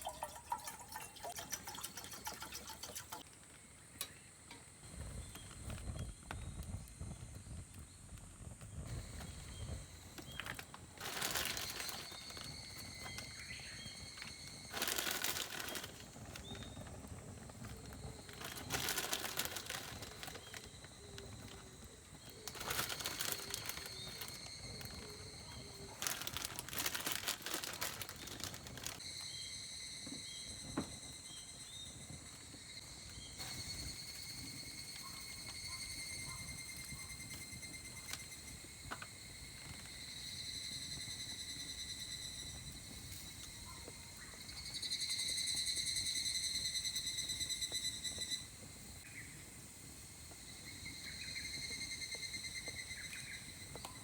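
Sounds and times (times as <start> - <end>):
crinkling rustling handling noise: 8.9 - 29.0
high insect drone: 8.9 - 43.6
small high chirps: 17.5 - 29.2.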